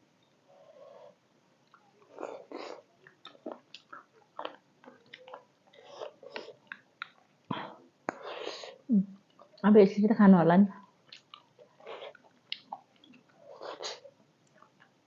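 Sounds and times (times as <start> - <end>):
person chewing with wet mouth smacks: 1.6 - 7.3, 11.0 - 15.0.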